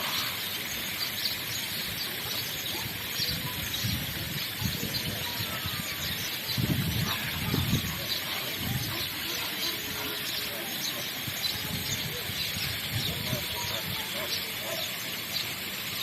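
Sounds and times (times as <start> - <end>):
small birds chirping: 0.0 - 16.0
steady outdoor hiss: 0.0 - 16.0.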